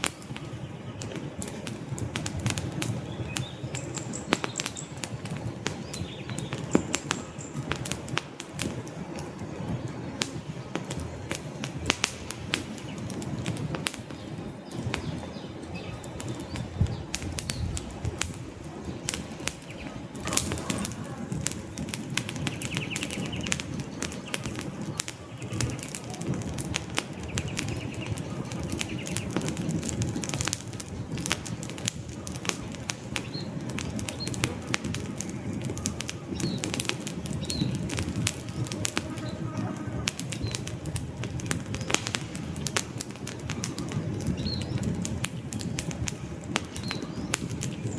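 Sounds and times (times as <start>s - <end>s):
logs crackling and popping: 0.0s - 47.9s
low rumble of flames: 0.0s - 47.9s.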